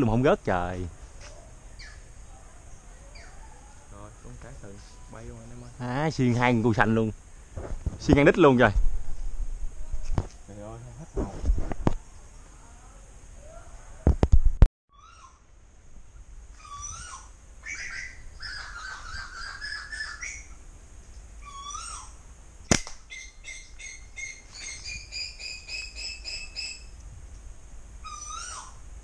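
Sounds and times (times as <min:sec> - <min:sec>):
bird calling: 0:01.2 - 0:06.5, 0:14.9 - 0:15.5, 0:16.5 - 0:22.2, 0:23.0 - 0:27.0, 0:28.0 - 0:28.9
slingshot band snapping: 0:22.7 - 0:23.0.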